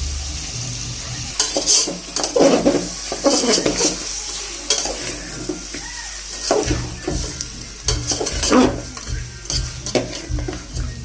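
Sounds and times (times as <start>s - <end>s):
background music with low beat: 0.0s - 1.4s, 6.6s - 11.0s
chicken frying in a pan: 0.0s - 11.0s
spatula scraping metal pan: 1.4s - 10.8s.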